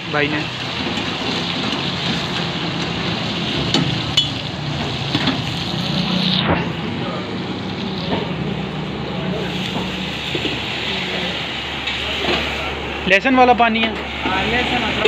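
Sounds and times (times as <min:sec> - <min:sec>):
chicken sizzling in a pan: 0:00.0 - 0:06.4, 0:09.4 - 0:12.8.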